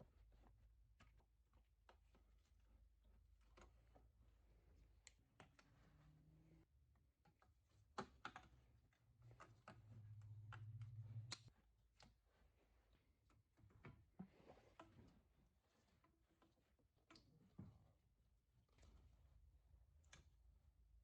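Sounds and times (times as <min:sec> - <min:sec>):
faint clicks and light knocks: 0:07.2 - 0:12.4.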